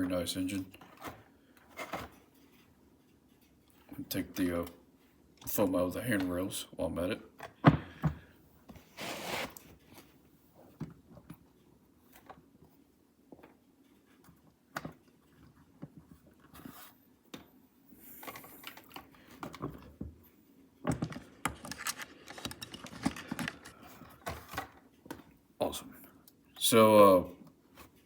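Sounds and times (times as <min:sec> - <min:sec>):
packing foam rustling: 0:08.9 - 0:09.6
small clicks and scratches: 0:21.1 - 0:24.7.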